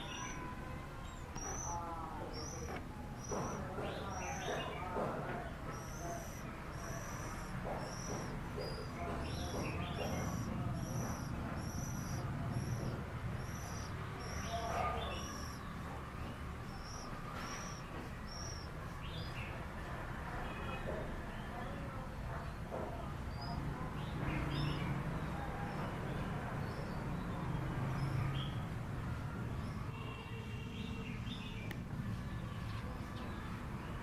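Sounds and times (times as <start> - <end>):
magpie-robins calling: 0.0 - 0.5, 1.3 - 19.5, 23.2 - 23.6.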